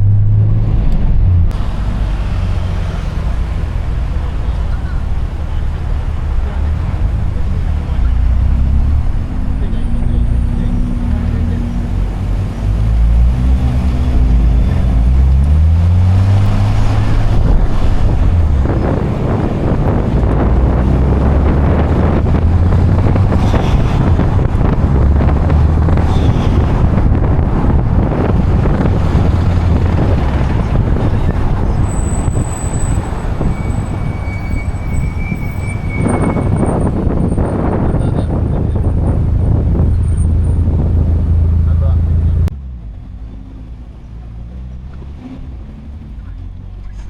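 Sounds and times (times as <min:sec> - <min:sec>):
sports car engine revving: 0:00.0 - 0:34.5
tyre and road noise: 0:00.0 - 0:47.0.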